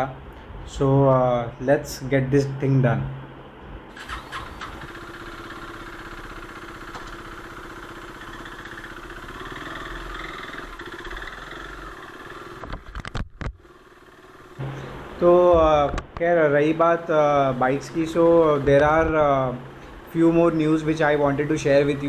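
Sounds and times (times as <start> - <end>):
motorcycle engine idling: 4.0 - 15.0.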